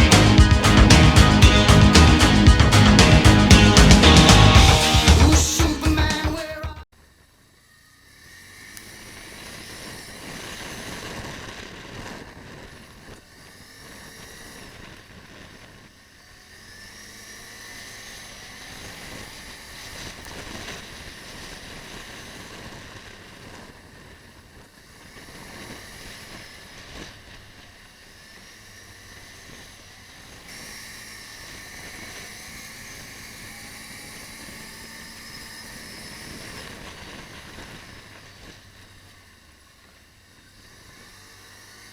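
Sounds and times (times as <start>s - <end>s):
vehicle engine running: 0.0s - 6.7s.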